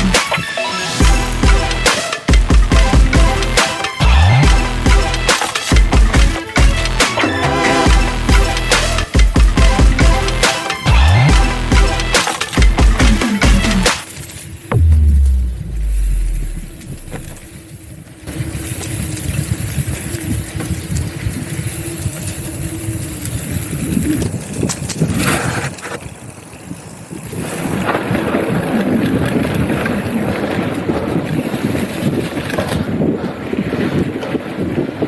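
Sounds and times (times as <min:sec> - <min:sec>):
wind buffeting microphone: 0:14.6 - 0:35.0.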